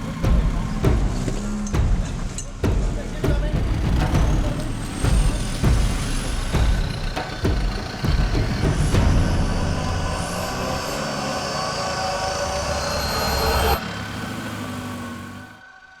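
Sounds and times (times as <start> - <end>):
sharp rhythmic thuds: 0.0 - 13.8
vehicle engine running: 0.0 - 15.6.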